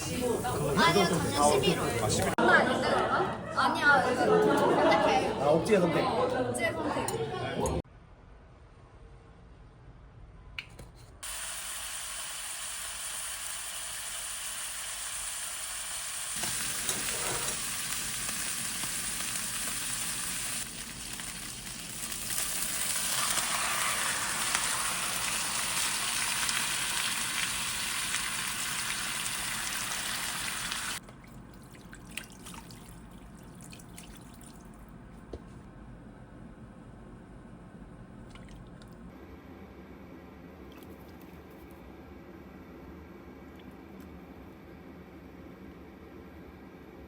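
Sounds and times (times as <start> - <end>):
food sizzling in a pan: 11.2 - 31.0.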